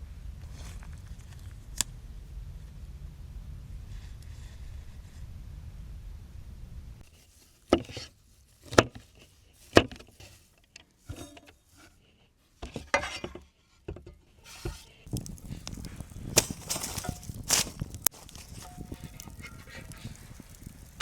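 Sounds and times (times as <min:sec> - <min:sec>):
cookware and utensils clattering: 0:07.7 - 0:12.0, 0:12.6 - 0:15.1, 0:15.7 - 0:21.0.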